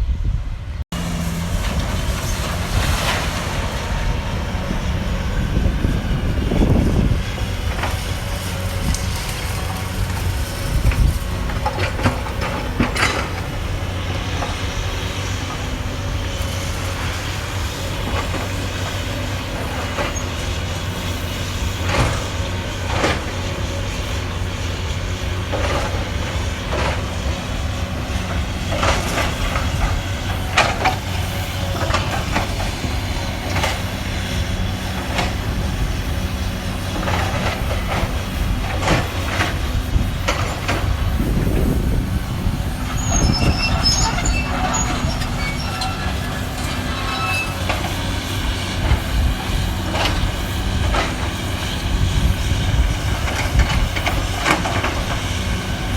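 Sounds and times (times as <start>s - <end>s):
excavator diesel engine running: 0.2s - 55.9s.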